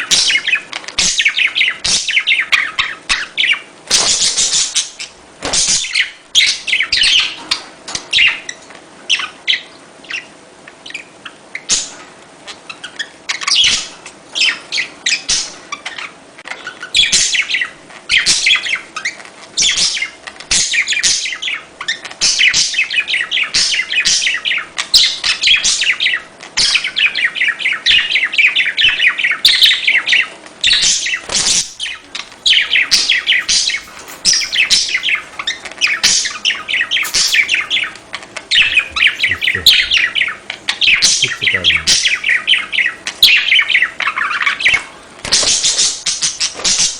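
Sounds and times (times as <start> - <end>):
budgerigars chattering: 30.6 - 46.2.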